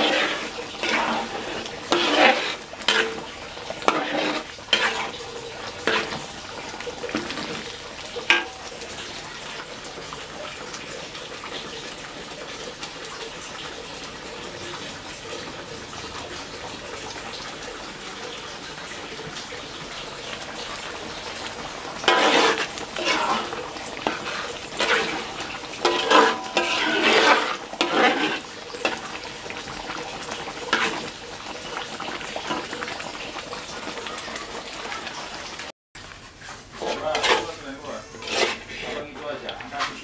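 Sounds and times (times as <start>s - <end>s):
metal spatula scraping a wok: 0.0s - 8.6s, 21.4s - 31.2s, 36.4s - 40.0s
paste sizzling in oil: 0.0s - 14.5s, 19.5s - 35.7s, 36.3s - 40.0s.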